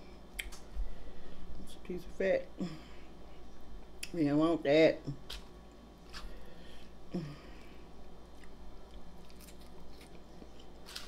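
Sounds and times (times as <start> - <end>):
person chewing food: 5.1 - 11.0.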